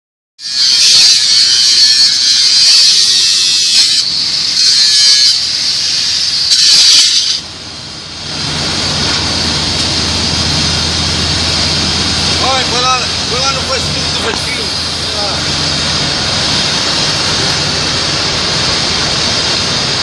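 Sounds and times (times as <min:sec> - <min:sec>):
welding arc hissing: 0:00.4 - 0:07.4, 0:08.4 - 0:20.0
low hum: 0:07.4 - 0:20.0.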